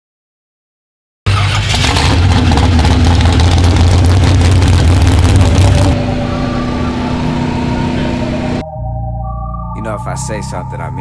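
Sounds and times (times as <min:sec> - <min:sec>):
car engine running loud: 0:01.3 - 0:08.6.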